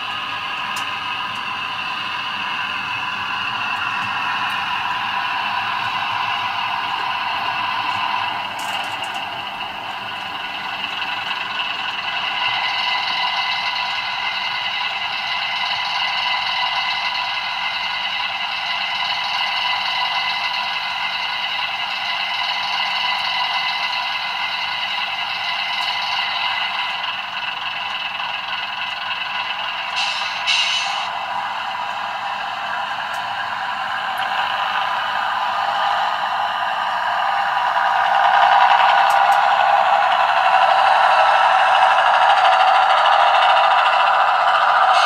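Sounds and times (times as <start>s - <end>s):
model train clattering on track: 0.0s - 31.3s, 32.6s - 45.0s
tinny diesel engine sound: 0.0s - 45.0s.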